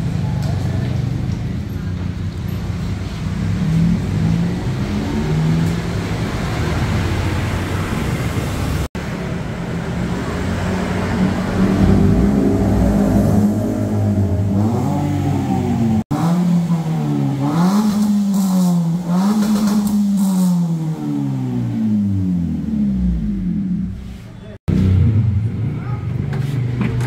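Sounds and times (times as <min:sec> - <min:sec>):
car engine revving: 0:03.3 - 0:24.0.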